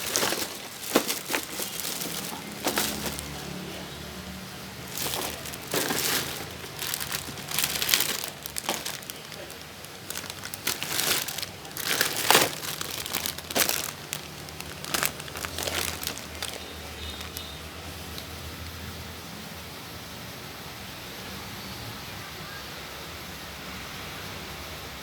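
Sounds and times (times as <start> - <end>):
wrapping crinkling: 0.0 - 3.9, 4.7 - 18.4.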